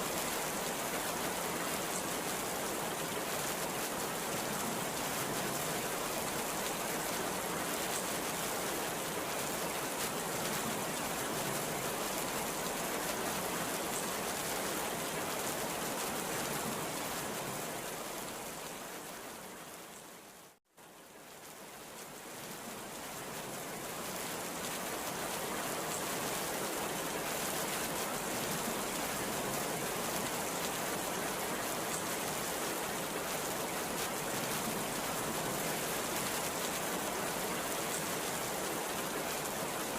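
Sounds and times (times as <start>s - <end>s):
heavy rain pouring: 20.8s - 39.9s.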